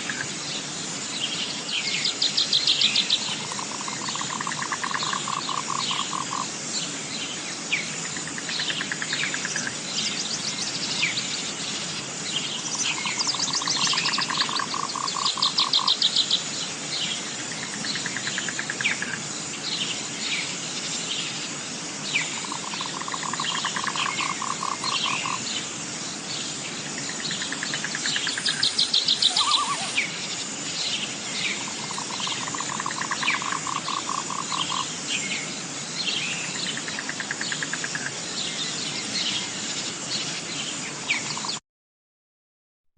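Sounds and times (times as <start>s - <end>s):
high insect drone: 0.0s - 41.6s
birds chirping: 26.2s - 36.9s.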